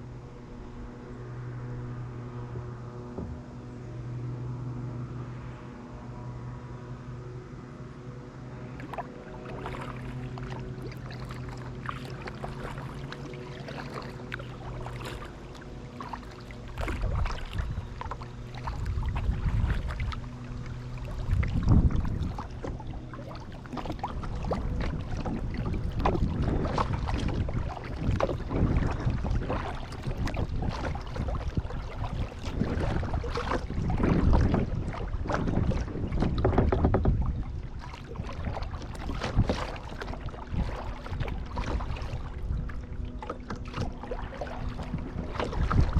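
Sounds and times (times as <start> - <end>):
low rumbles: 0.0 - 45.9
paddle blades splashing water: 0.0 - 45.9
quiet water sounds: 0.0 - 45.9
steady low hum: 0.0 - 45.9.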